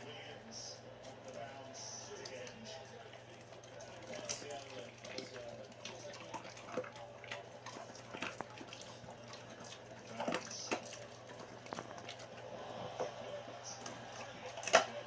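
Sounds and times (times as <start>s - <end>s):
dog chewing raw meat: 1.0s - 15.0s
bone crunching: 13.8s - 15.0s.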